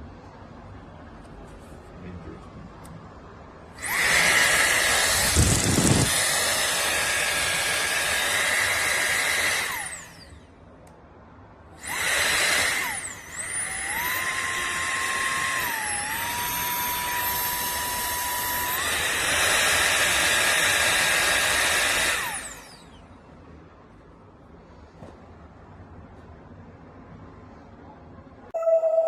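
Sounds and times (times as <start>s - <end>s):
electric air duster motor whine: 3.8s - 10.4s, 11.8s - 23.0s.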